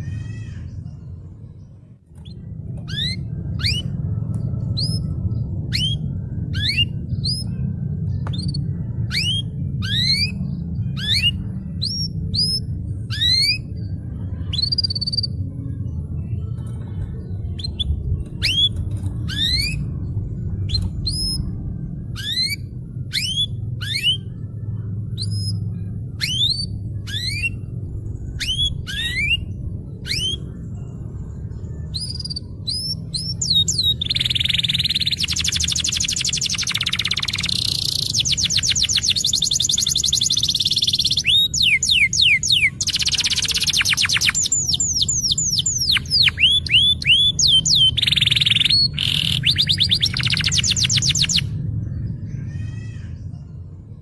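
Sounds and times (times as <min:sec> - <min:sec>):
steady low hum: 0:00.0 - 0:54.0
canary singing whistled notes: 0:02.2 - 0:04.0, 0:04.8 - 0:07.6, 0:08.4 - 0:13.8, 0:22.1 - 0:24.3, 0:26.2 - 0:27.7, 0:28.3 - 0:30.6, 0:31.9 - 0:51.6.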